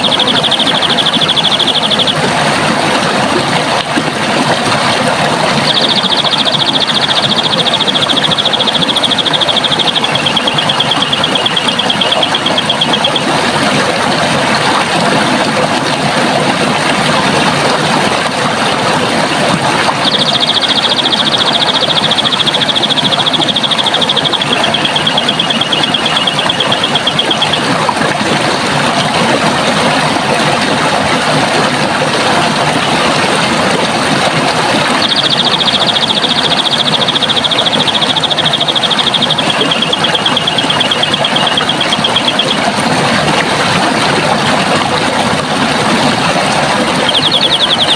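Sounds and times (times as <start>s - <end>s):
high rapid trill: 0.0s - 2.6s, 5.0s - 14.9s, 19.8s - 28.0s
running water rushing: 0.0s - 47.9s.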